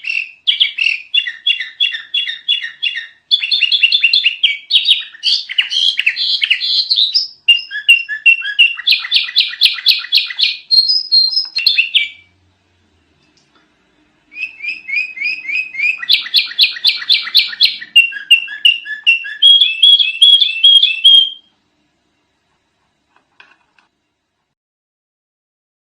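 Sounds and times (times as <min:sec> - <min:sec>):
bulbul singing: 0:00.0 - 0:12.4, 0:14.3 - 0:21.5.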